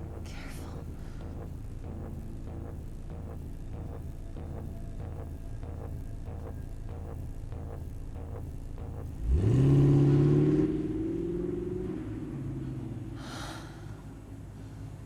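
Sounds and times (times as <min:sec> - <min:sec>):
car engine revving: 0:00.0 - 0:13.2.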